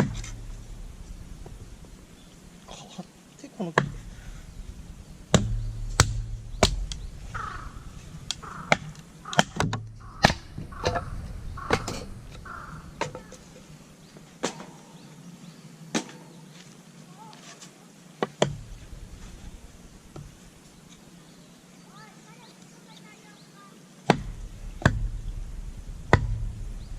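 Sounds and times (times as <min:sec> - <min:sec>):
short bird calls: 0:00.3 - 0:15.4.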